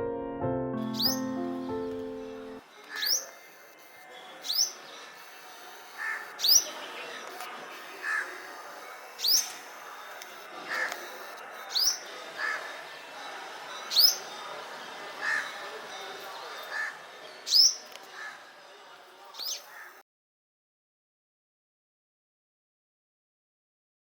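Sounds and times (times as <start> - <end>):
sharp high bird call: 0.8 - 1.4, 2.9 - 6.8.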